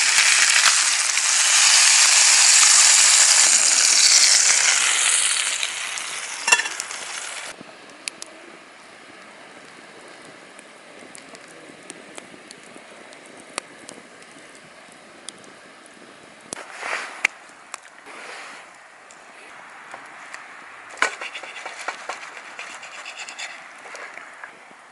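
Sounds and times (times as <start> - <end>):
loud hiss: 0.0 - 7.6
meat sizzling on grill: 0.0 - 7.6
campfire crackling and popping: 0.0 - 24.9.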